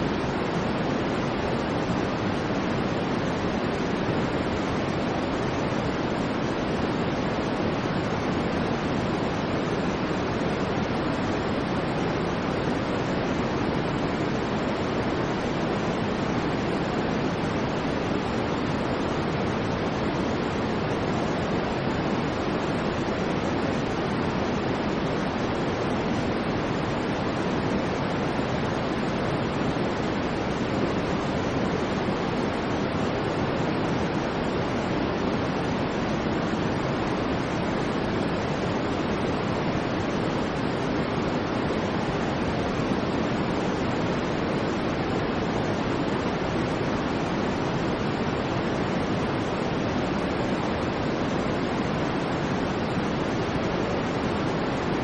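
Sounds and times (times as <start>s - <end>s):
steady white noise: 0.0s - 55.0s.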